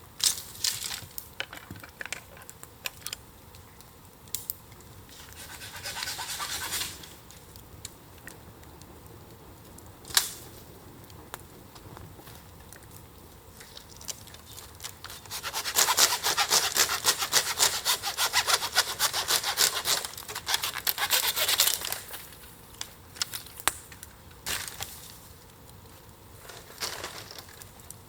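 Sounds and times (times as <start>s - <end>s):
hand saw cutting wood: 5.1s - 7.1s, 15.1s - 22.0s.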